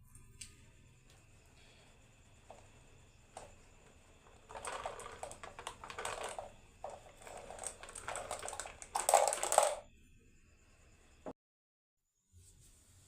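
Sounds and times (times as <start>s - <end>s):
marbles rattling down wooden run: 3.3s - 9.8s.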